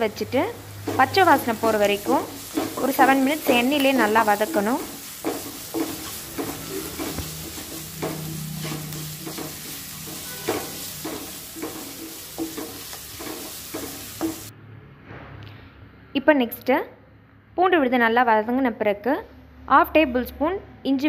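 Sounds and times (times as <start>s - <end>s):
onions sizzling in oil: 0.0s - 14.5s
wooden spatula scraping pan: 0.6s - 14.5s.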